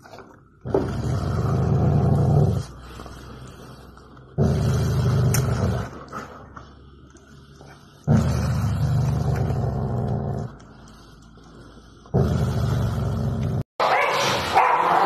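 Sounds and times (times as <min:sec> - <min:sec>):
dog growling low: 0:00.6 - 0:06.5, 0:07.6 - 0:13.7.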